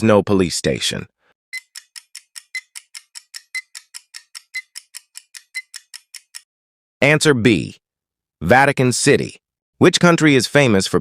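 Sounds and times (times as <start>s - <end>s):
clock ticking quickly: 1.6s - 6.5s.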